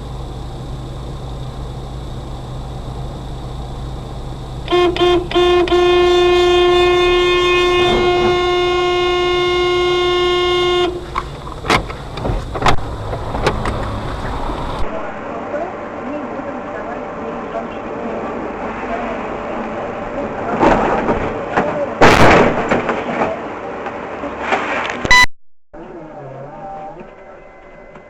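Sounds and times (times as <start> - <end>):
vehicle hum: 0.0 - 22.0
car horn honking: 4.6 - 11.2, 25.1 - 25.3.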